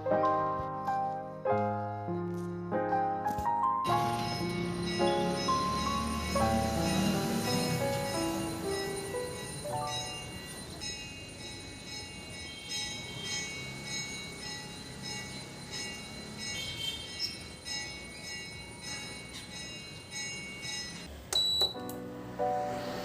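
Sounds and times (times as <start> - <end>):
tinkling bell-like melody: 3.8 - 21.1.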